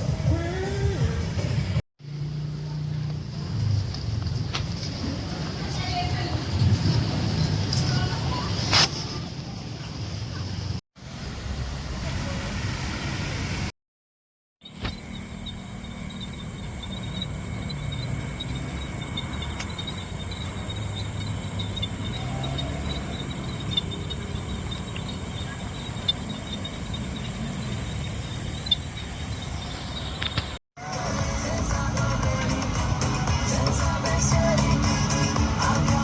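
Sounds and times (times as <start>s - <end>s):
low hum of city traffic: 0.0s - 13.8s, 14.6s - 36.0s
insects chirring: 14.6s - 36.0s.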